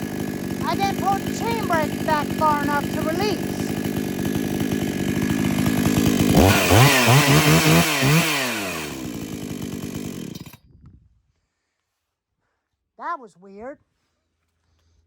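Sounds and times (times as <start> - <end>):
chainsaw engine idling and revving: 0.0 - 10.6.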